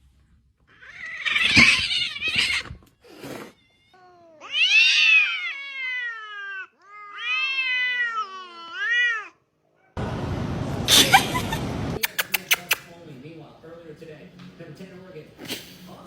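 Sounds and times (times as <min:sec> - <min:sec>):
cat yowling: 0:00.7 - 0:02.8, 0:03.4 - 0:09.4.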